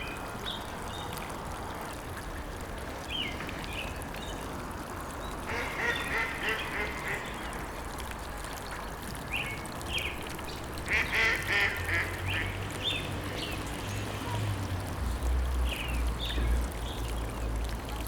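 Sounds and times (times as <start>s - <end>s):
waterfowl quacking: 5.5s - 7.5s, 10.9s - 12.6s.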